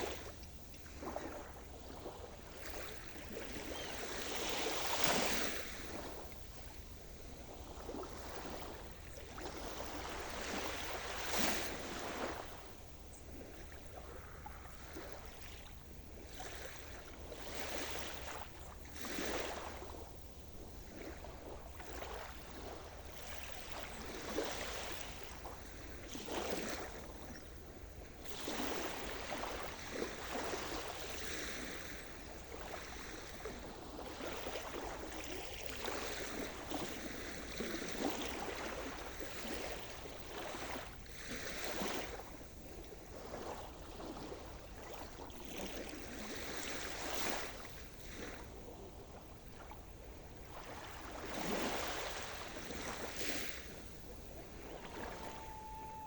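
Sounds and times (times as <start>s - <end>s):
waves breaking: 0.0s - 56.0s
low surf rumble: 52.4s - 56.0s.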